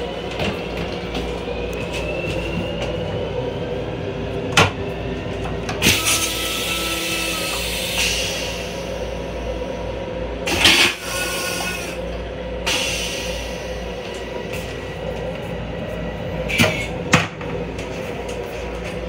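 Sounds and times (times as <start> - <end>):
electric railcar rumble and hum: 0.0 - 19.0.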